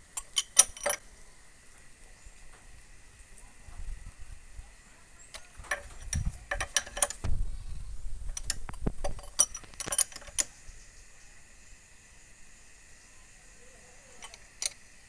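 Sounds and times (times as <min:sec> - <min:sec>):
wrench clicking on metal: 0:00.2 - 0:01.0, 0:05.3 - 0:07.2, 0:08.3 - 0:10.5, 0:14.2 - 0:14.8
low knocks: 0:07.1 - 0:09.2.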